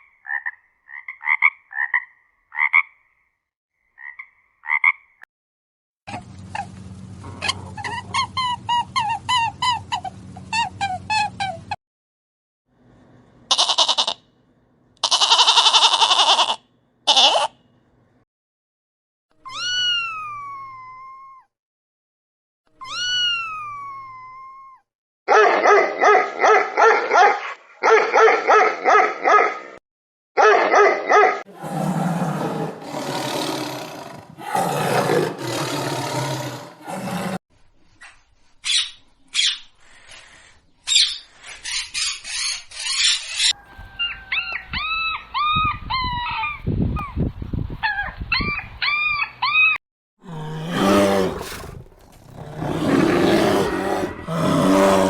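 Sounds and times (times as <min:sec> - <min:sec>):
animal calls: 0:31.5 - 0:37.4, 0:48.0 - 0:55.0.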